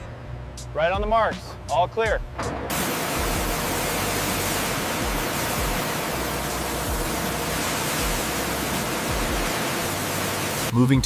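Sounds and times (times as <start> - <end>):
pressure washer jet hissing: 2.6 - 10.7.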